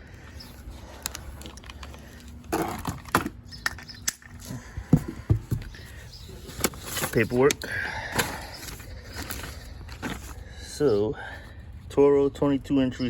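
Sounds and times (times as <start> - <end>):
packaging rustle: 0.2 - 3.4, 5.6 - 10.4.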